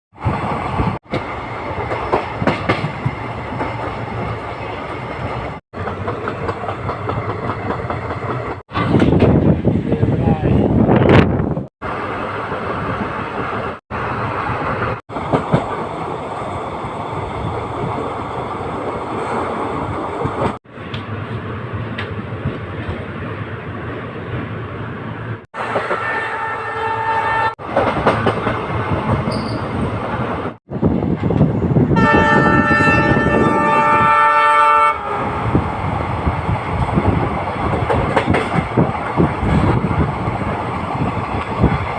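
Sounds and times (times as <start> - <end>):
train rail and coach noise: 0.1 - 41.9
locomotive horn chord: 32.0 - 35.2.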